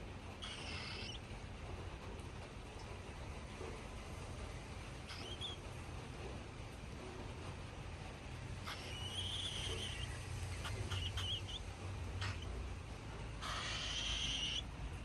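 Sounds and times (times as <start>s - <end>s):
cockatiel chick raspy begging calls: 0.4s - 1.2s, 5.1s - 5.6s, 8.6s - 12.6s, 13.4s - 14.7s.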